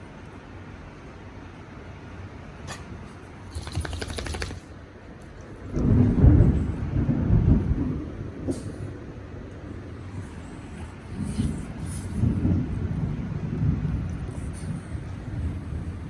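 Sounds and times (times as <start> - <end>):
thunder crackling rattle: 3.5 - 4.7, 5.8 - 9.0
low thunder rumble: 5.7 - 9.2, 11.1 - 16.0.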